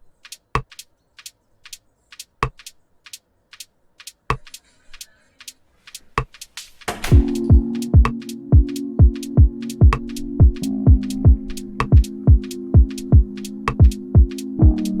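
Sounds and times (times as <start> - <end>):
hi-hat ticks: 0.0 - 15.0
heavy drum hits: 6.9 - 8.1.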